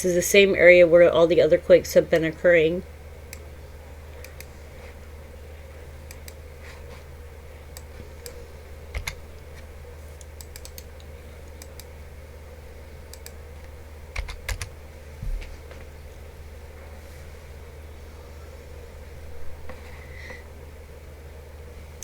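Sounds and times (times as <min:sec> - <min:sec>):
steady low hum: 0:00.0 - 0:22.0
keyboard and mouse clicks: 0:07.8 - 0:09.2, 0:10.2 - 0:10.9, 0:14.2 - 0:14.7.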